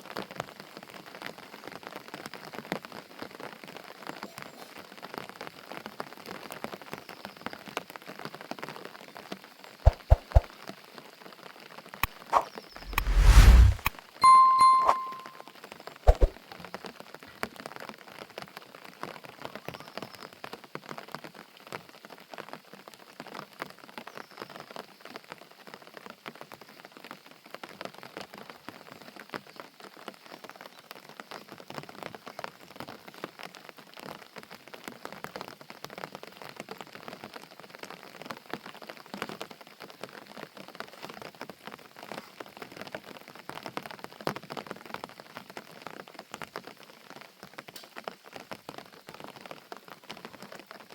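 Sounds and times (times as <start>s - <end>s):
steady rain falling: 43.0s - 50.9s.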